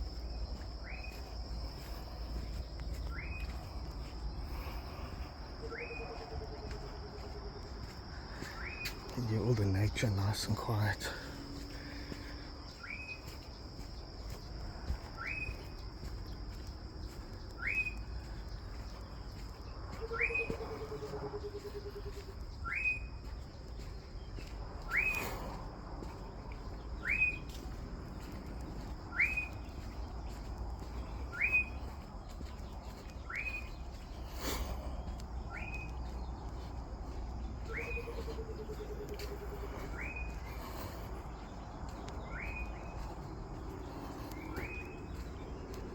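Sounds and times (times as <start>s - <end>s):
high insect drone: 0.0s - 45.9s
bird rising whistle: 24.9s - 25.2s, 27.0s - 27.4s, 29.1s - 29.6s, 42.2s - 42.8s.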